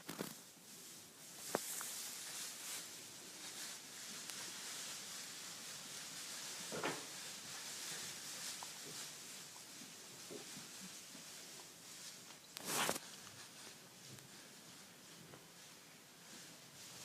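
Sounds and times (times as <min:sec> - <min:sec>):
animals rustling: 0:00.0 - 0:17.0
short scuffling noise: 0:12.6 - 0:13.0.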